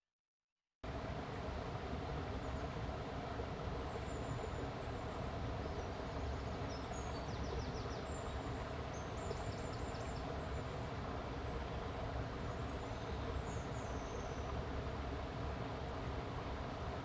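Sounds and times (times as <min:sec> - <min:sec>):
small birds chirping: 0:05.6 - 0:10.7.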